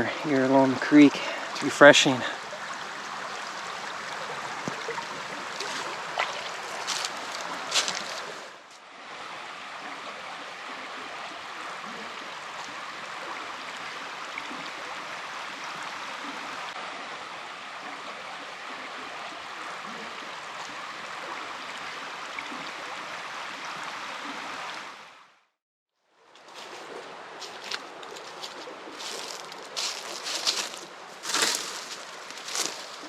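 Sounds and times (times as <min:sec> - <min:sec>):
creek water over rapids: 0:00.0 - 0:25.4, 0:26.1 - 0:33.0.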